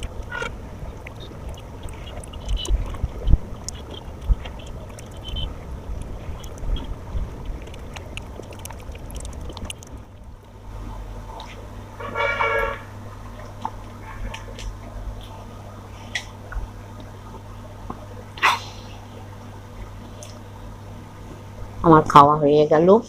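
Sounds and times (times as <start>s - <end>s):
chewing: 0.0s - 10.1s
low rumble: 0.0s - 22.0s.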